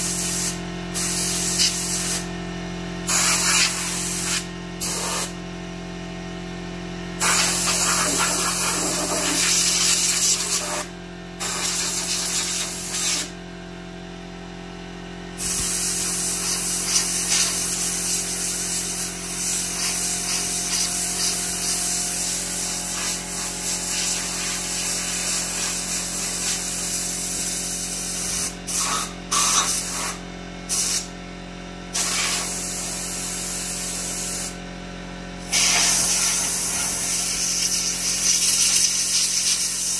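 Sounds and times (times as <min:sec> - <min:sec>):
hissing spray: 0:03.1 - 0:05.3, 0:07.2 - 0:10.8, 0:15.4 - 0:22.3, 0:22.9 - 0:26.7, 0:32.0 - 0:34.5, 0:35.4 - 0:39.9.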